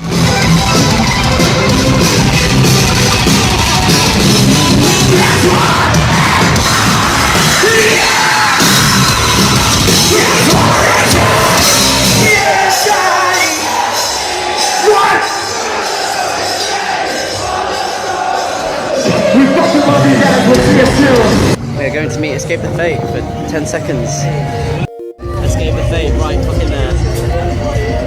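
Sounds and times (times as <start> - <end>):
loud rock band: 0.0 - 21.8.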